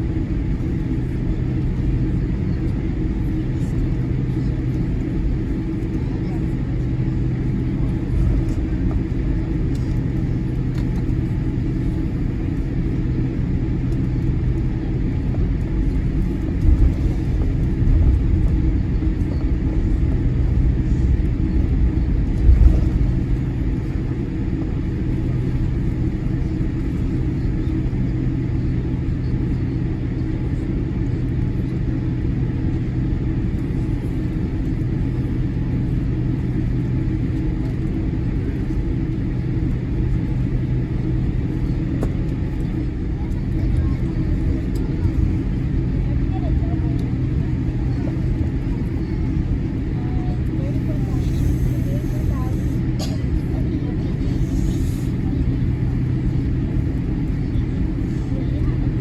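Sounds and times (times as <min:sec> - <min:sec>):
aircraft cabin engine rumble: 0:00.0 - 0:59.0
low hum: 0:04.4 - 0:27.9.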